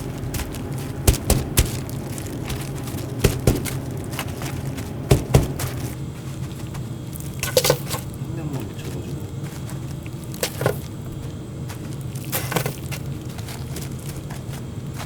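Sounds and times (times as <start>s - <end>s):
steady low hum: 0.0s - 15.0s
kitchen knocks and clatter: 2.5s - 3.9s, 5.1s - 5.7s.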